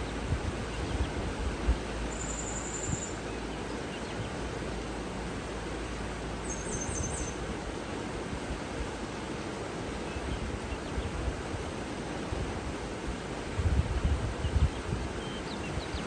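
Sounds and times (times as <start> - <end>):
water rushing: 0.0 - 16.0
bird chirping: 1.8 - 4.3, 6.4 - 7.4.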